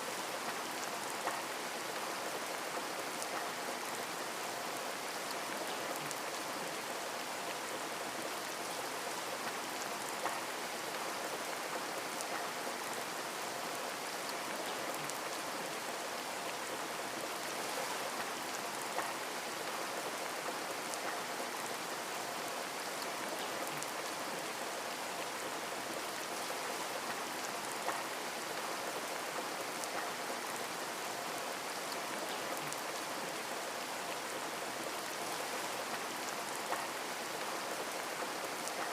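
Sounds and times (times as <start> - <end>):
raindrop ticks: 10.2 - 10.5, 27.1 - 28.1, 36.6 - 36.9.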